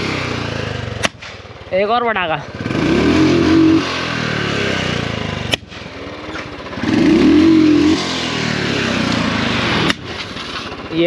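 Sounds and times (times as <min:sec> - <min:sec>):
motorcycle engine revving: 0:00.0 - 0:11.0
exhaust backfire pop: 0:00.9 - 0:01.6, 0:05.4 - 0:06.6, 0:09.1 - 0:10.8.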